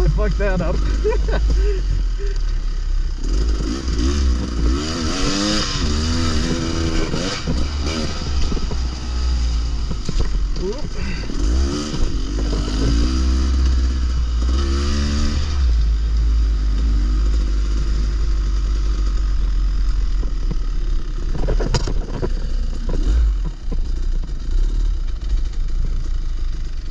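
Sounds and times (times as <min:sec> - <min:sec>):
dirt bike engine revving: 0:00.0 - 0:02.4, 0:03.1 - 0:19.2.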